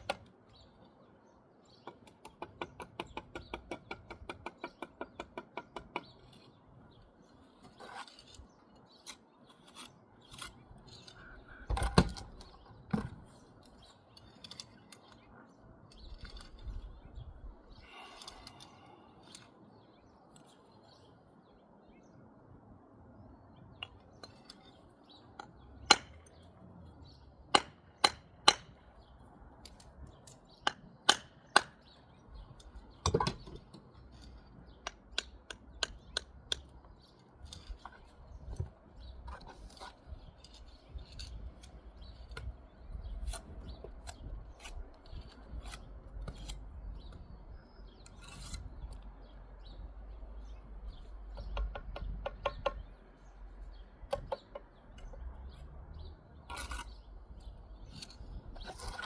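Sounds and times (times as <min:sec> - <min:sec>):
trowel scraping mortar: 0:07.2 - 0:11.7, 0:48.0 - 0:49.0, 0:56.4 - 0:57.1, 0:57.8 - 0:59.0.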